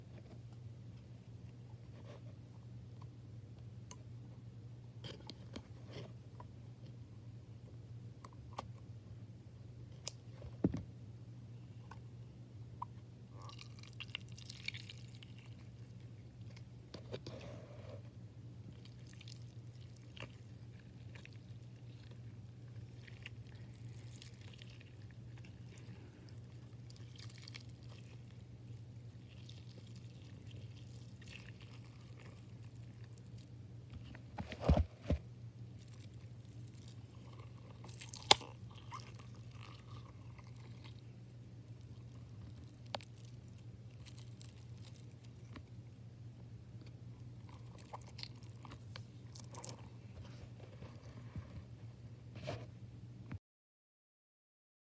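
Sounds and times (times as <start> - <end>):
steady low hum: 0.0 - 53.4
foam toy crackling and crunching: 35.8 - 41.0, 41.8 - 45.5.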